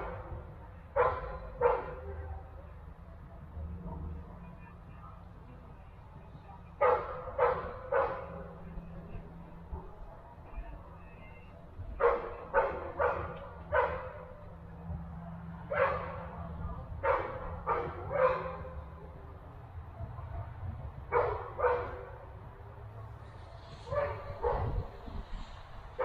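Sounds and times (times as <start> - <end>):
dog barking: 0.9 - 2.5, 6.8 - 8.6, 11.9 - 14.5, 15.7 - 16.3, 17.0 - 19.0, 21.1 - 22.2, 23.9 - 25.0.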